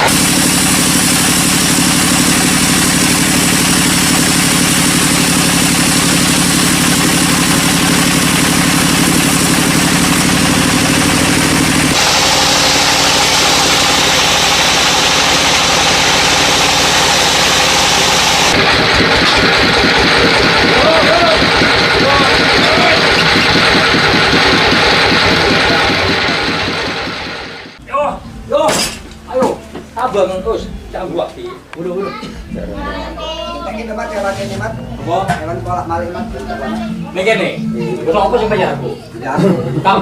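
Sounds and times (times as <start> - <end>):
sawmill engine drone: 0.0 - 27.8.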